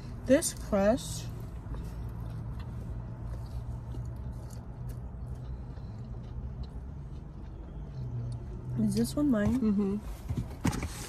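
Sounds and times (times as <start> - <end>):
chewing crunches: 1.5 - 8.7.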